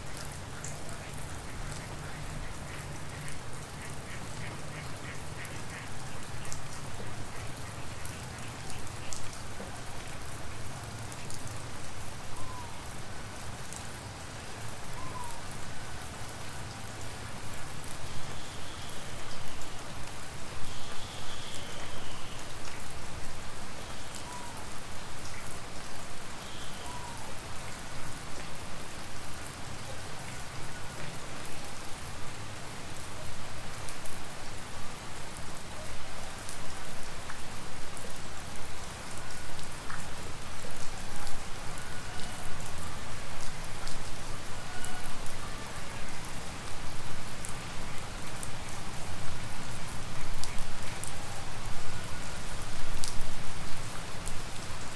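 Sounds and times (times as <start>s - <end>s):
rain hissing: 16.9s - 28.0s.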